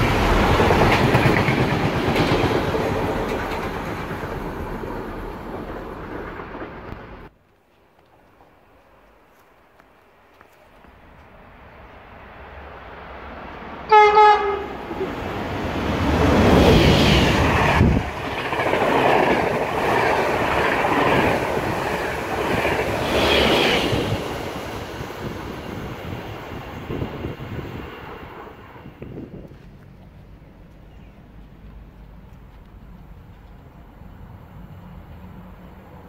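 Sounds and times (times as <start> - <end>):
train wheel and rail noise: 0.0 - 36.0
train horn note: 13.9 - 15.0.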